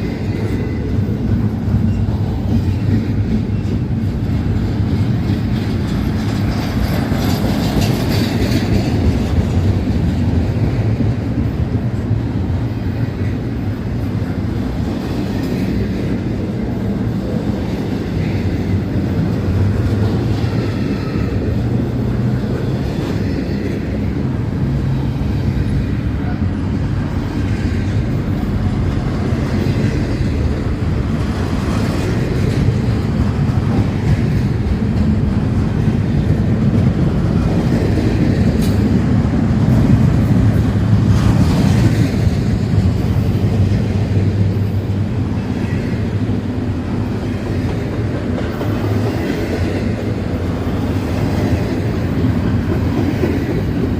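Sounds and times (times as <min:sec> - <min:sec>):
freight train rumbling on rails: 0:00.0 - 0:53.9.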